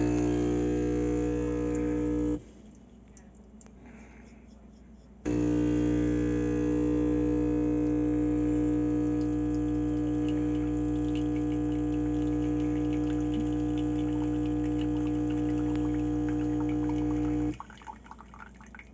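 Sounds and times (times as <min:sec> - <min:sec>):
espresso dripping into cup: 0:00.0 - 0:02.4, 0:05.3 - 0:17.6
espresso machine pump buzzing: 0:00.0 - 0:02.4, 0:05.3 - 0:17.6.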